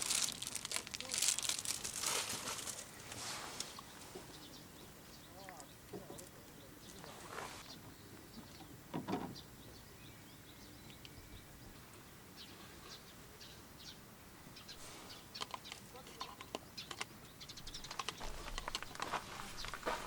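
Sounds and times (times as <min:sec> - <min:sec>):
rustling handling noises: 0:00.0 - 0:04.3, 0:17.9 - 0:20.0
small birds chirping: 0:00.0 - 0:20.0.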